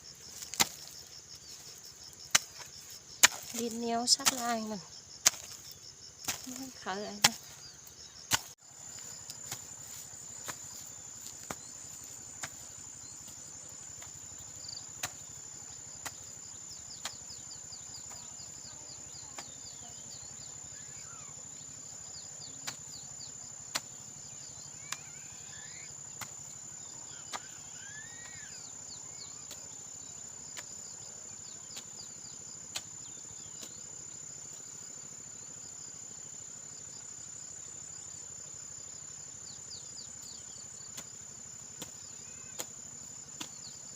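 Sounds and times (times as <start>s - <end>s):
insects droning: 0.0s - 43.9s
bird calls: 24.3s - 29.8s.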